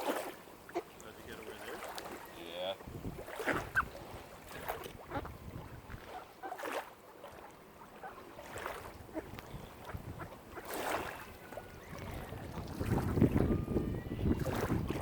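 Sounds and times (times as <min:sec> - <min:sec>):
water lapping and splashing: 0:00.0 - 0:15.0
wind rumble on microphone: 0:02.8 - 0:06.2, 0:08.7 - 0:15.0.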